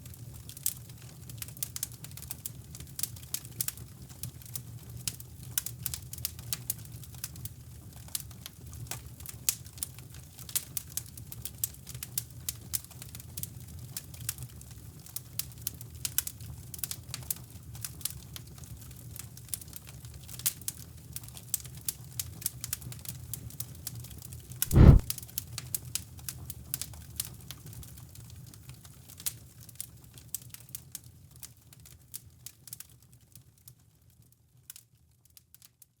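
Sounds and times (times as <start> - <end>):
fire crackling and popping: 24.7 - 25.1
loud low thump: 24.7 - 25.1
low rumble: 24.7 - 25.1.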